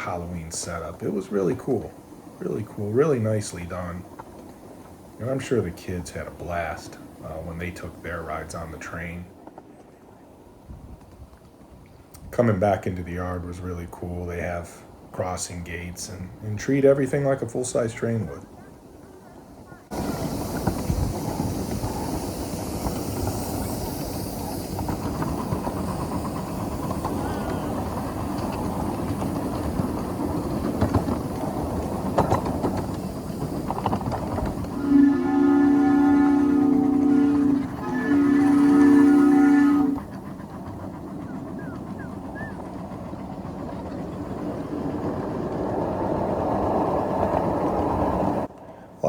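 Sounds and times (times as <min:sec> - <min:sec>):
miniature train wheels rumbling on rail: 0:00.0 - 0:09.8, 0:10.8 - 0:49.0
constant hiss: 0:00.0 - 0:49.0
locomotive whistle: 0:34.7 - 0:40.2, 0:41.3 - 0:42.6.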